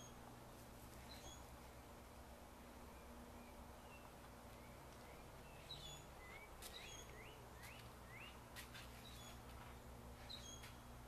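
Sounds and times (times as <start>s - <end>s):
faint bird chirps: 1.0s - 1.9s, 10.2s - 10.8s.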